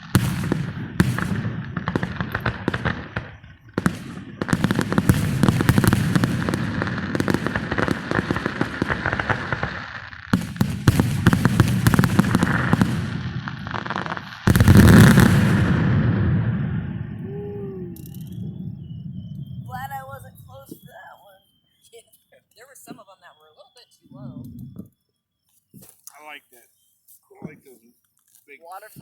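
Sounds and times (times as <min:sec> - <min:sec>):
firework bang: 0:00.0 - 0:21.0
fireworks crackling pops: 0:00.0 - 0:29.0.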